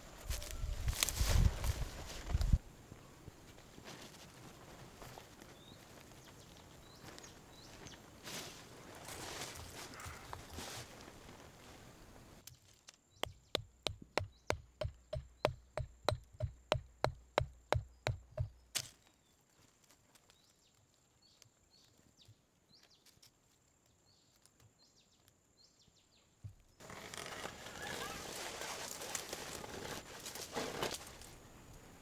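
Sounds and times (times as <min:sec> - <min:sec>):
wood chopping strikes: 0:13.2 - 0:18.9.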